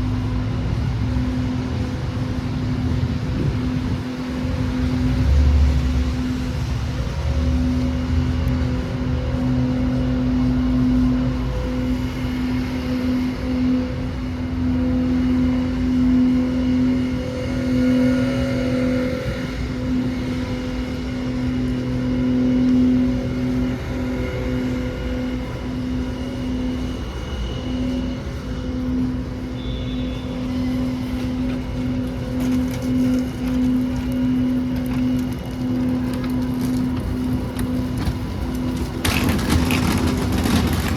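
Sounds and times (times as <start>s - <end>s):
low mechanical hum: 0.0s - 40.9s
rumble of vehicles: 0.0s - 40.9s.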